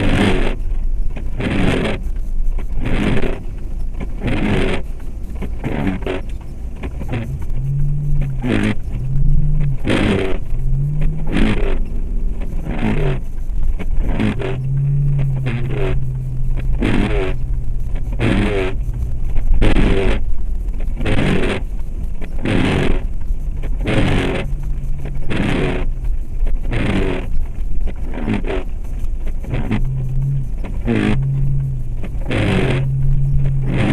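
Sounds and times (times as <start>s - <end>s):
car engine low hum: 0.0s - 33.9s
road noise: 0.0s - 33.9s
short scraping sweep: 28.3s - 33.9s.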